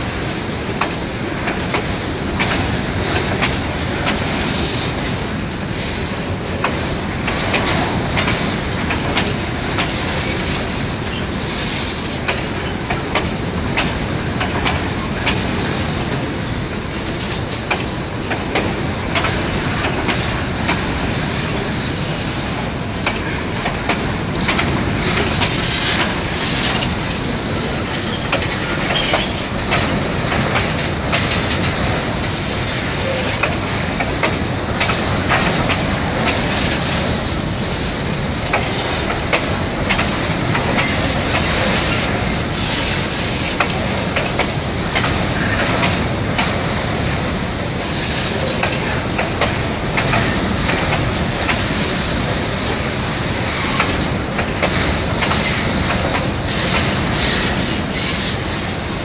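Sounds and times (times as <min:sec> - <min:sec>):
freight wagons rumbling on rails: 0:00.0 - 0:59.0
wheels clicking over rail joints: 0:00.7 - 0:16.3, 0:17.0 - 0:59.0.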